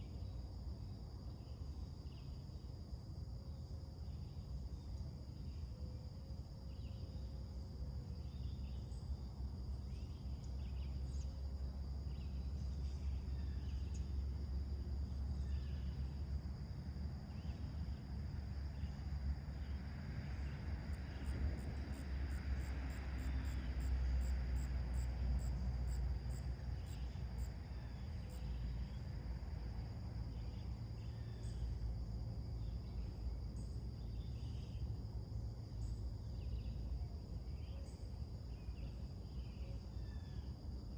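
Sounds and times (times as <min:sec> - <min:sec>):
crickets trilling: 0:00.0 - 0:40.9
low steady rumble: 0:00.0 - 0:40.9
short insect chirps: 0:18.7 - 0:40.6.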